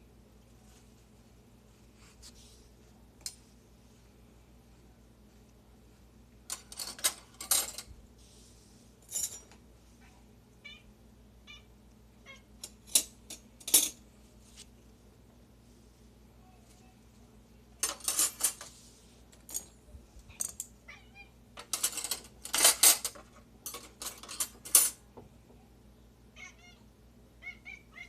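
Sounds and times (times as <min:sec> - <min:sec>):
silverware clinking: 0:12.6 - 0:14.0.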